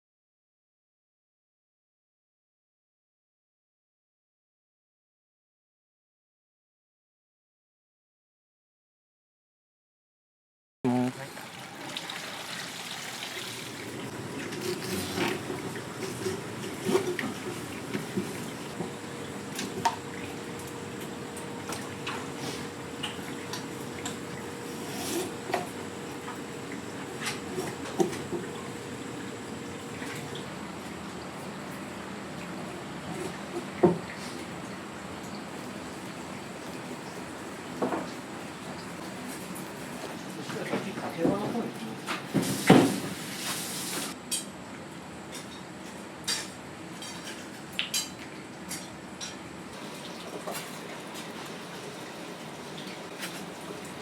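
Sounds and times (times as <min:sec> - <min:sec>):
kitchen background noise: 0:11.7 - 0:54.0.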